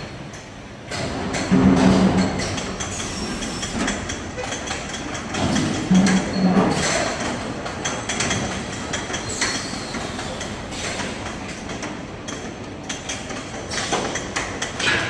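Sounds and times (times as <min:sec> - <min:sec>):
mechanical clanks and knocks: 0:00.0 - 0:15.0
washing machine rushing hiss: 0:02.4 - 0:04.4, 0:09.1 - 0:11.6.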